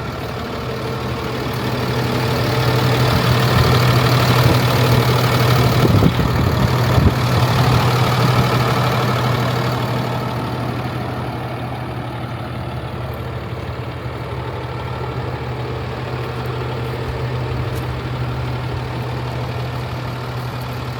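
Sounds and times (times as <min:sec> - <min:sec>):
diesel truck engine idling: 0:00.0 - 0:20.9.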